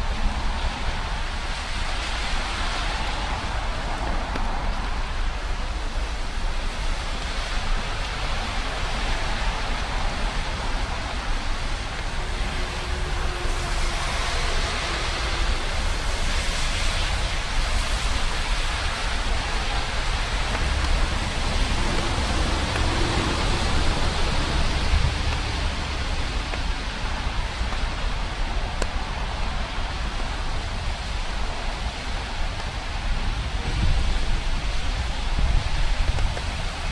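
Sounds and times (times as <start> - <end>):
steady rain falling: 0.0 - 36.9
low rumble: 9.8 - 36.9.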